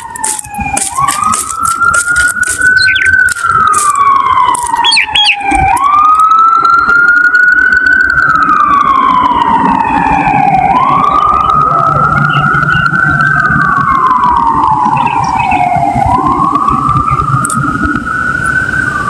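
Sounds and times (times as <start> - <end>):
short siren chirps: 0.0 - 7.2
wailing siren: 0.0 - 19.0.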